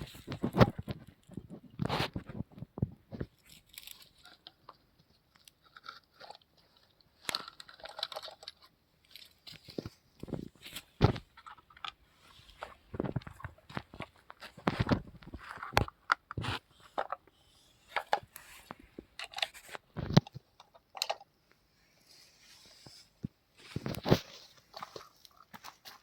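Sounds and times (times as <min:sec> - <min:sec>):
toy vehicles knocking and scraping: 0:00.0 - 0:21.6.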